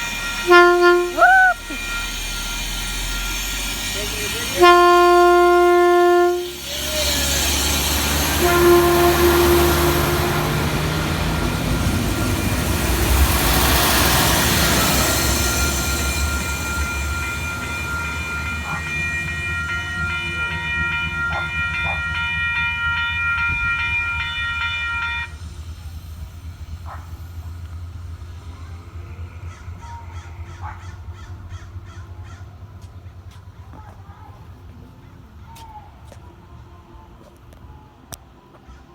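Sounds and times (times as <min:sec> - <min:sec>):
high-pitched ringing chord: 0:00.0 - 0:25.5
train rushing on rails: 0:00.0 - 0:38.9.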